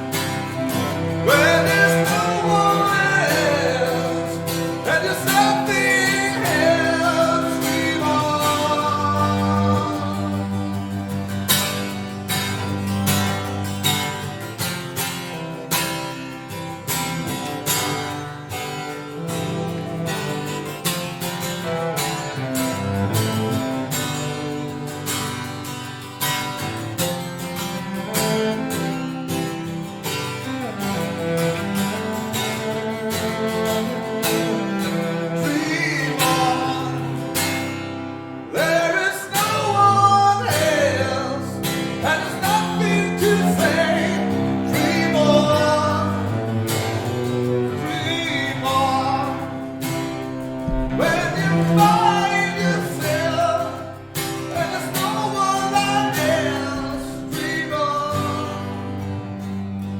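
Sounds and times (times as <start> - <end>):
acoustic guitar playing: 0.0 - 59.9
bowed cello: 0.0 - 59.9.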